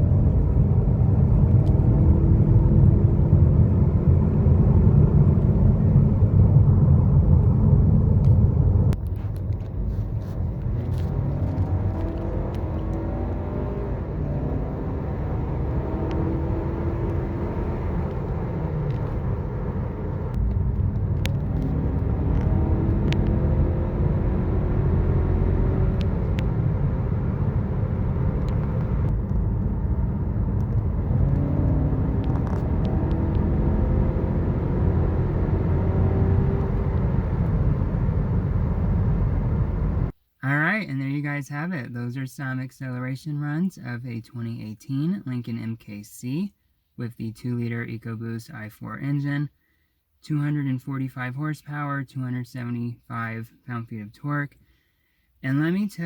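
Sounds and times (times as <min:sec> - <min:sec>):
car engine accelerating: 0:00.0 - 0:40.1
heavy road rumble: 0:00.0 - 0:40.2.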